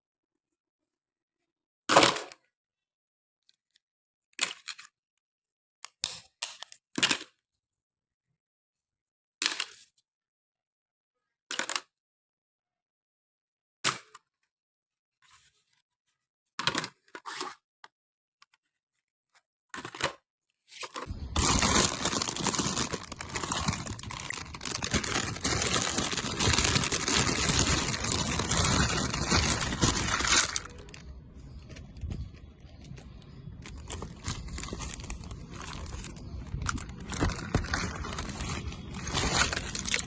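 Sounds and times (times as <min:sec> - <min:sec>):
loud dense crinkling: 0:21.1 - 0:40.0.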